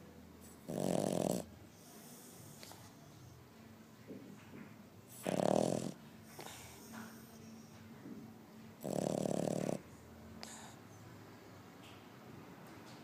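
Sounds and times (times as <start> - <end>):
dog snoring: 0.4 - 3.3, 5.1 - 7.7, 8.8 - 11.0
soft breathing: 6.2 - 8.0, 10.4 - 11.8.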